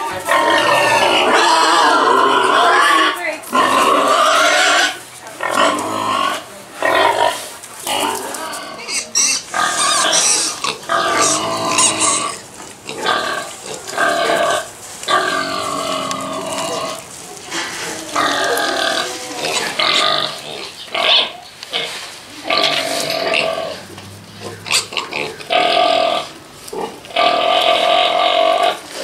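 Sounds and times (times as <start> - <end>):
farm animals calling: 0.0 - 29.0.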